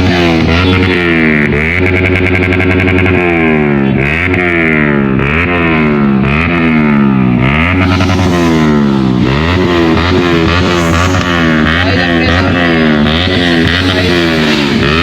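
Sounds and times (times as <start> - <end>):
motorcycle engine revving hard: 0.0 - 15.0.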